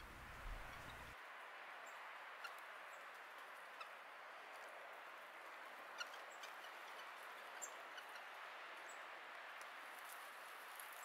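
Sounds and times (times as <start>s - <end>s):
faint bird calls: 0.0s - 1.2s
faint steady hiss: 0.0s - 6.4s.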